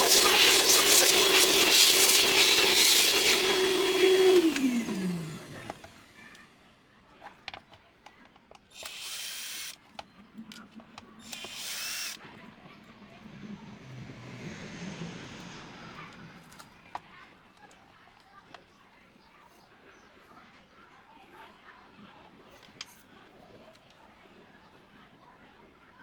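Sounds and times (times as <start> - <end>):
power tool motor running: 0.0 - 6.2, 8.7 - 9.8, 11.2 - 12.2.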